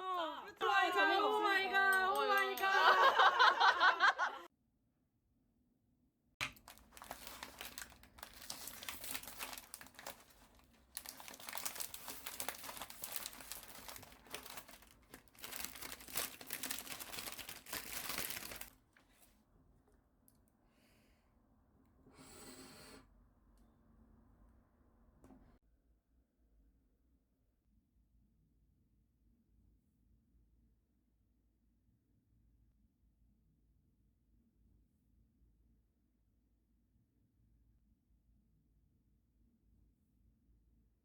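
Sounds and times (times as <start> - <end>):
packaging crinkling and tearing: 6.4 - 18.8.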